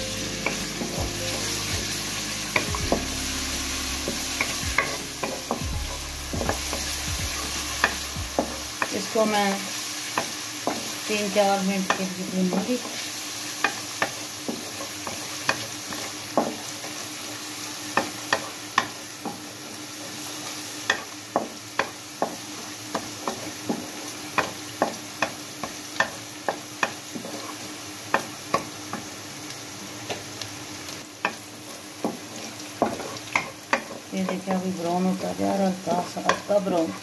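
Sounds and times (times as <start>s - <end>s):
paste sizzling in pan: 0.0s - 37.0s
spatula tapping and scraping pan: 10.1s - 10.9s, 20.8s - 29.1s, 31.2s - 34.8s, 36.0s - 37.0s.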